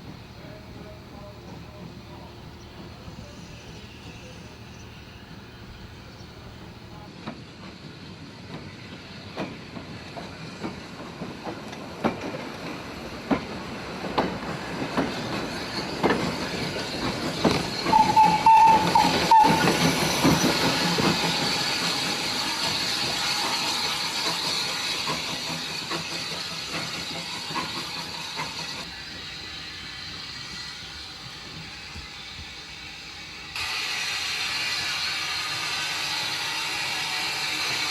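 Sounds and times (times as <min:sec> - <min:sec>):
steam hissing: 0:00.0 - 0:37.9
wheels clicking on jointed track: 0:09.4 - 0:29.5.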